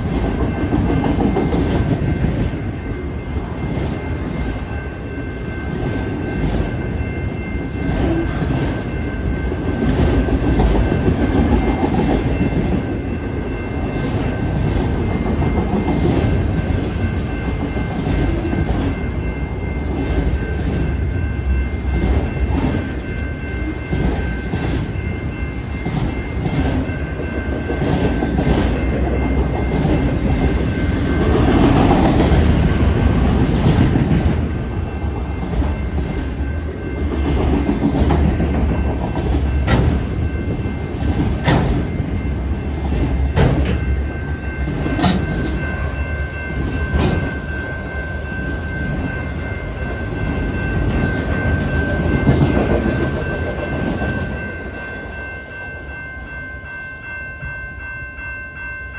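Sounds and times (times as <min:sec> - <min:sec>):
crossing warning bell ringing: 0:00.0 - 0:58.9
freight train rumbling past: 0:00.0 - 0:58.9
wheels clacking over rail joints: 0:37.0 - 0:42.1.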